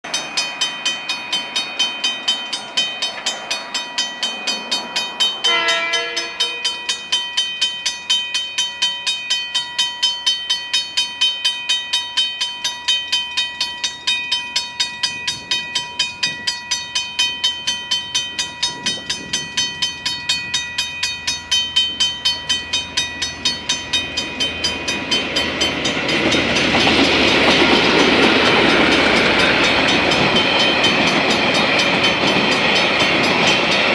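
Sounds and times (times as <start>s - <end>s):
level crossing bells ringing: 0.0s - 33.9s
train rumble and wheel noise: 0.1s - 33.9s
train horn: 5.4s - 7.0s.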